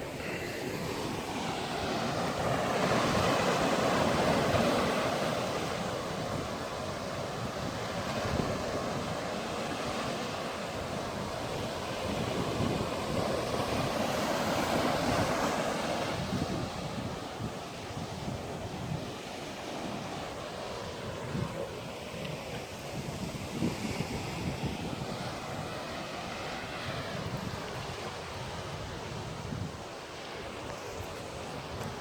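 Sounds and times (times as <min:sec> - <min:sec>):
surf washing ashore: 0:00.0 - 0:32.0
wind buffeting microphone: 0:00.7 - 0:32.0.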